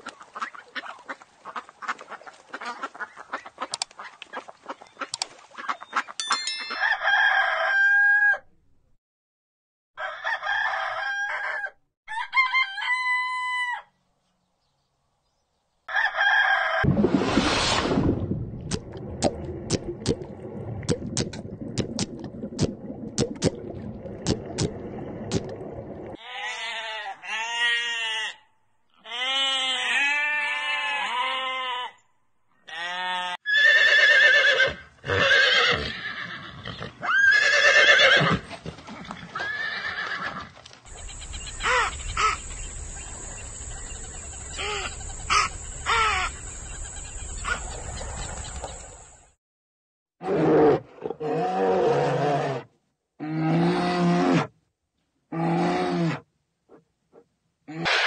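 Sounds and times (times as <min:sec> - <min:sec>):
horse whinnying: 0:33.4 - 0:40.5.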